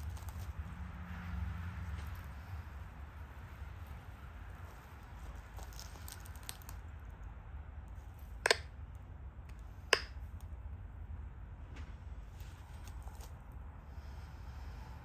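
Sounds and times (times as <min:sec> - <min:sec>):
stone flakes snapping off: 0:08.5 - 0:08.7.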